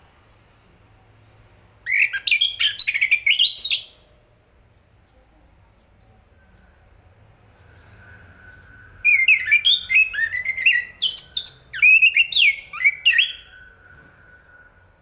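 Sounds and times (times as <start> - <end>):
thrush singing whistled notes: 1.9 - 4.0, 7.6 - 15.0.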